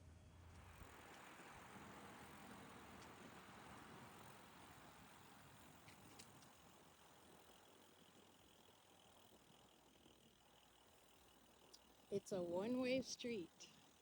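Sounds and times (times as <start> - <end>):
soft ticks: 2.9 - 3.3, 5.8 - 6.8, 10.6 - 12.1.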